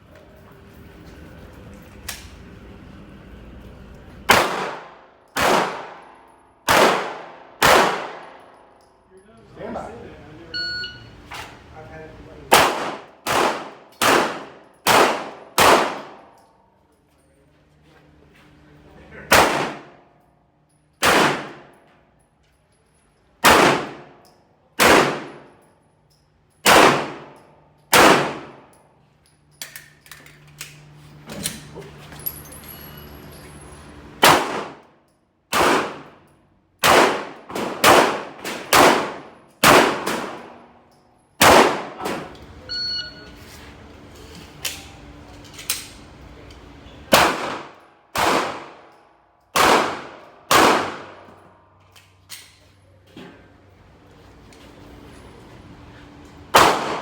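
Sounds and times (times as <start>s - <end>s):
pistol shots: 4.3s - 8.5s, 12.5s - 16.4s, 19.3s - 20.0s, 21.0s - 21.8s, 23.4s - 24.2s, 24.8s - 25.5s, 26.6s - 28.7s, 34.2s - 34.8s, 35.5s - 36.2s, 36.8s - 40.7s, 41.4s - 42.3s, 47.1s - 48.9s, 49.5s - 51.3s, 56.5s - 57.0s.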